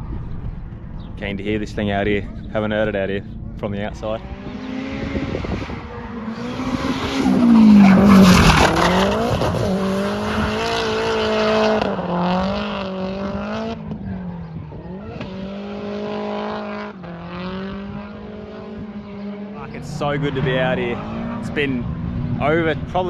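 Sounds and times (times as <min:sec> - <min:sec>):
car engine revving: 0:00.0 - 0:23.0
tyre screech: 0:05.9 - 0:10.8.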